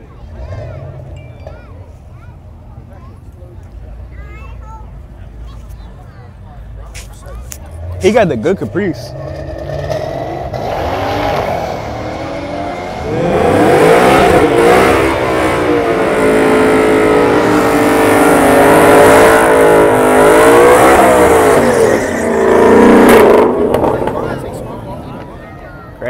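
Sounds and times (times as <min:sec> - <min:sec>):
drag car engine accelerating: 0:07.7 - 0:25.3.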